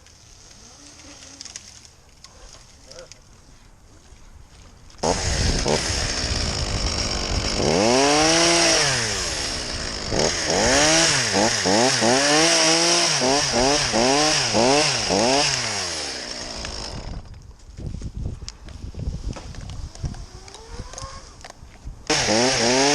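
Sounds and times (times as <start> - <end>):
chainsaw engine revving: 5.0 - 17.2, 22.1 - 22.9.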